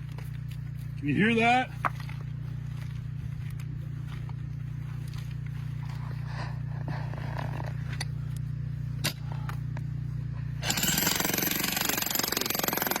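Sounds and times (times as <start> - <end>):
steady low hum: 0.0 - 13.0
jackhammer hammering rock: 10.6 - 13.0.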